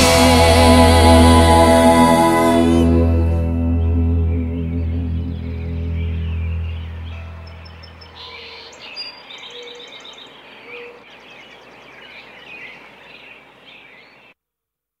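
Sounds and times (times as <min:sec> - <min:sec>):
low music chord: 0:00.0 - 0:08.3
songbirds chirping: 0:03.5 - 0:14.4
faint outdoor hiss: 0:03.8 - 0:14.4.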